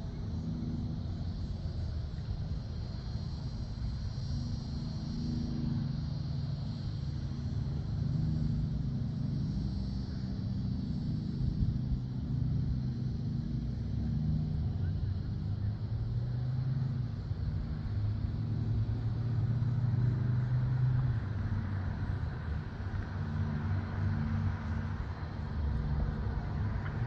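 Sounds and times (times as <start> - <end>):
car exhaust low note: 7.4 - 27.0.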